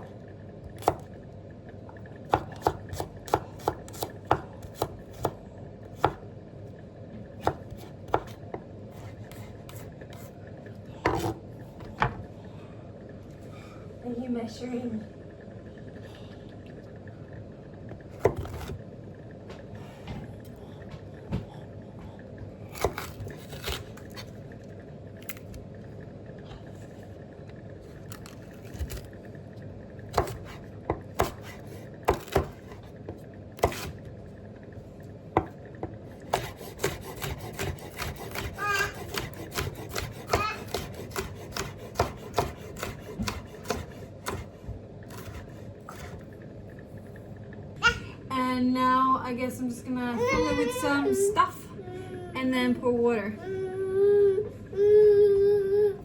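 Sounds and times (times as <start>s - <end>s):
knife chopping on wooden board: 2.3s - 5.4s, 6.0s - 6.2s, 7.4s - 10.3s, 11.0s - 11.4s, 30.1s - 34.0s, 36.3s - 46.2s.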